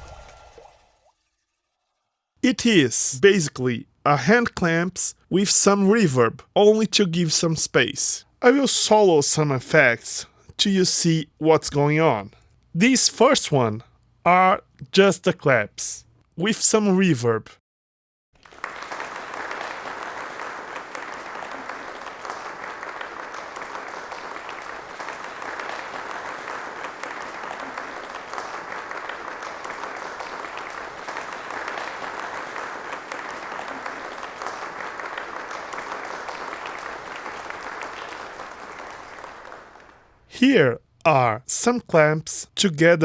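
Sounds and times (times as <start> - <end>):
hand claps imitating rain: 18.4 - 40.3.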